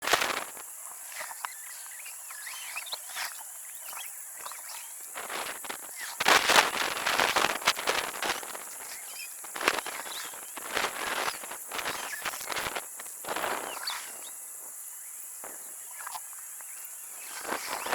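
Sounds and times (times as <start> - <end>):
crunching rustling noises: 0.0 - 0.6, 5.1 - 14.2, 17.2 - 17.9
high insect drone: 0.0 - 17.9
small birds chirping: 0.0 - 17.9.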